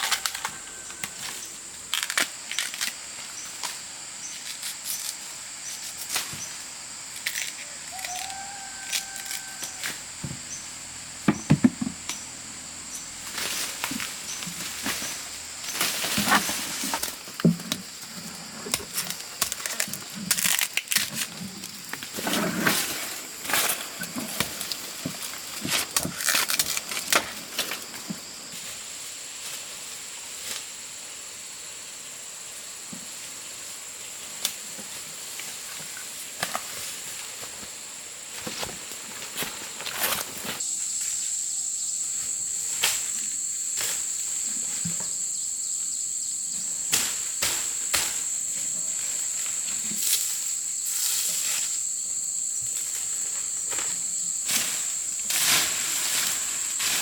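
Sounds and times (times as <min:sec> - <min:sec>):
dry vegetation rustling and crackling: 0:00.0 - 0:10.0, 0:12.9 - 0:30.7, 0:52.6 - 0:57.0
forest insects droning: 0:00.0 - 0:57.0.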